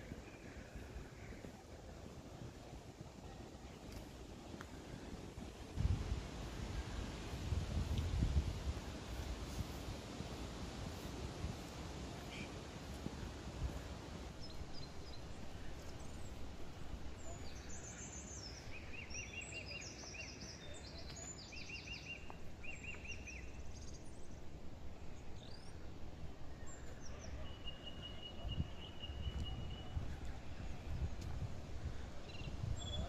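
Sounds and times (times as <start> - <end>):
low background noise: 0.0 - 33.0
birds chirping: 14.3 - 31.2.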